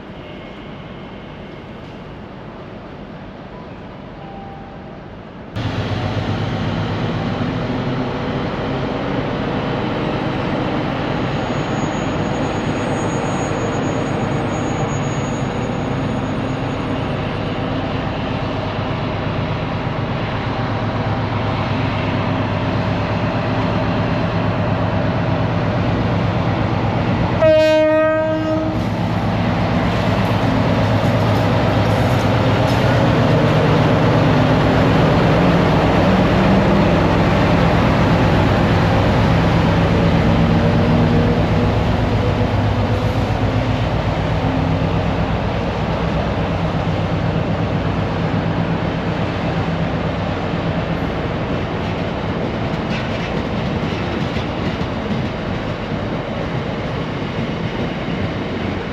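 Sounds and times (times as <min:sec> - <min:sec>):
train engine and rail noise: 0:00.0 - 0:58.9
train horn blast: 0:27.4 - 0:29.0.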